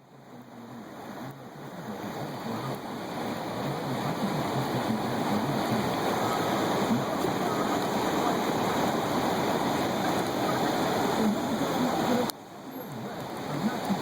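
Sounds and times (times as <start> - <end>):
roar of fast-flowing river: 0.0 - 14.0.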